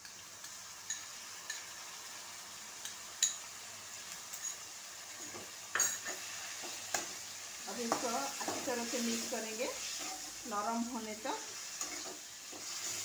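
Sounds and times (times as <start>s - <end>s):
vegetables sizzling in hot oil: 0.0s - 13.0s
spatula stirring in a pan: 2.7s - 13.0s.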